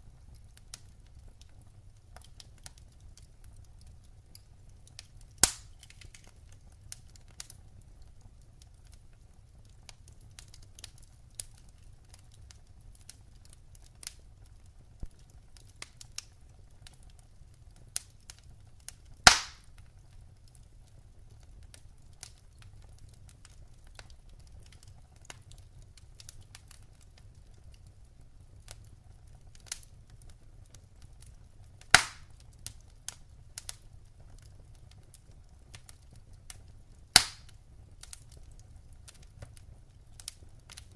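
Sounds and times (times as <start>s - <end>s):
fire crackling and snapping: 0.0s - 40.9s
loud fire pops: 5.0s - 6.4s, 18.9s - 19.9s, 28.8s - 33.8s, 34.4s - 40.9s.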